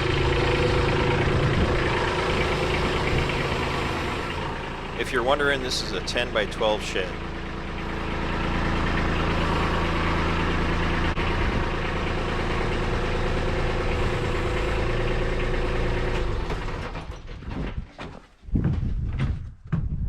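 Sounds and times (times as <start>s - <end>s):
tractor diesel engine idling: 0.0s - 17.2s.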